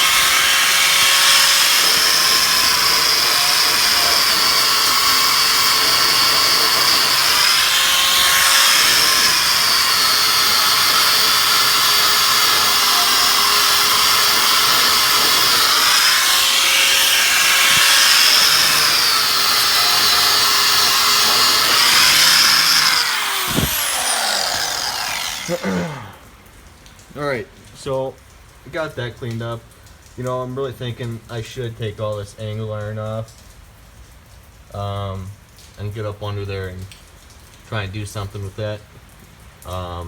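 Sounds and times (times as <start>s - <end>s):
angle grinder wire wheel on metal: 0.0s - 26.3s.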